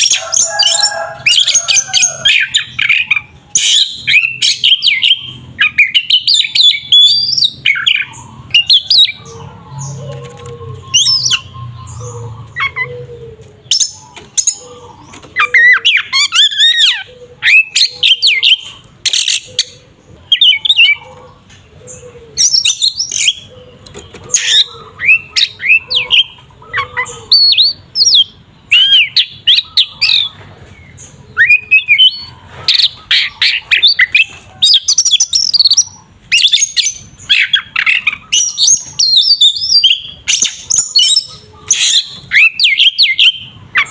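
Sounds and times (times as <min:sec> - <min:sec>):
bird singing whistles and squawks: 0:10.6 - 0:12.9, 0:13.7 - 0:21.0, 0:31.4 - 0:43.9.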